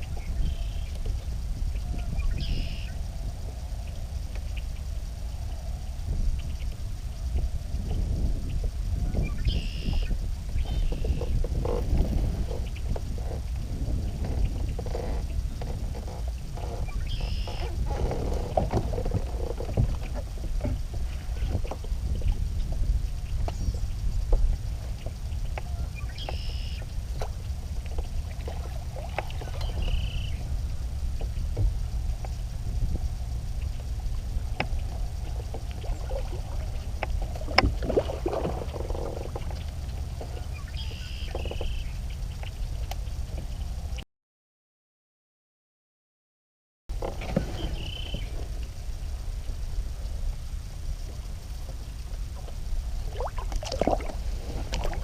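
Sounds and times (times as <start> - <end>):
steady low rumble: 0.0 - 44.0, 46.9 - 55.0
water splashing at hull: 9.1 - 42.1, 51.3 - 55.0
kayak knocks: 34.5 - 40.5.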